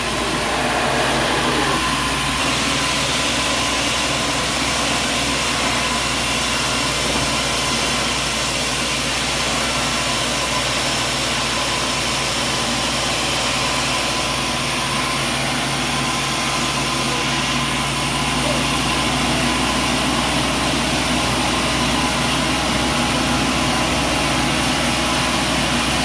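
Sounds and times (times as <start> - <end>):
even rushing noise: 0.0 - 3.2
machinery hum: 0.0 - 4.7.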